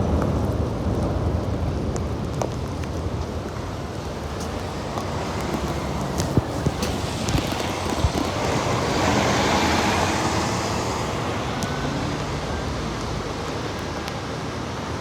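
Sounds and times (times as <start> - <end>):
passing vehicles hissing: 3.7 - 15.0.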